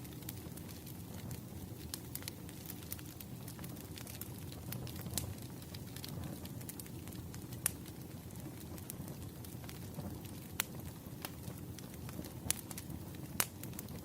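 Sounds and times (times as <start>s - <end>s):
fire crackles and pops: 0.0s - 14.0s
wood fire rumbling: 0.0s - 14.0s.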